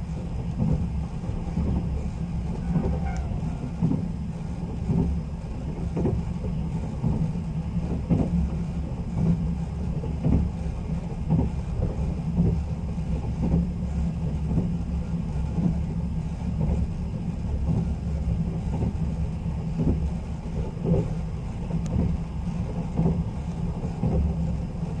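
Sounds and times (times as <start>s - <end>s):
train wheels rumbling on rails: 0.0s - 25.0s
short knocks of train wheels: 0.4s - 13.8s, 19.7s - 25.0s.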